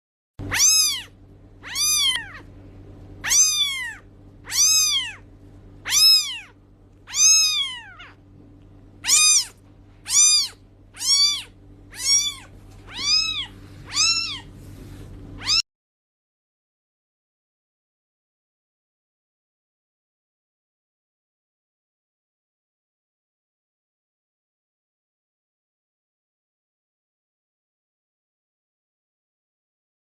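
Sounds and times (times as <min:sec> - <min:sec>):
cat meowing: 0:00.4 - 0:02.5, 0:03.2 - 0:08.2, 0:09.0 - 0:14.5, 0:15.4 - 0:15.6.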